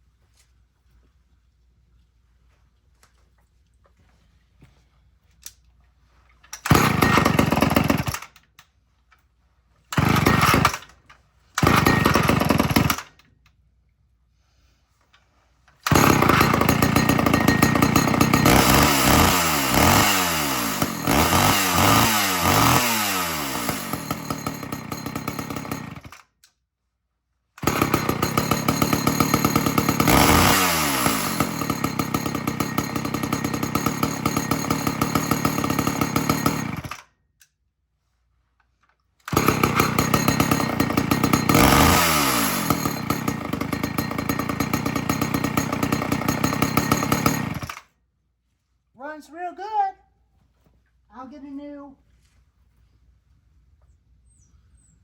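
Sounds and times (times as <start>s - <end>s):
chainsaw starting and revving: 6.6s - 8.5s, 9.9s - 13.3s, 15.8s - 26.3s, 27.6s - 37.1s, 39.2s - 48.0s.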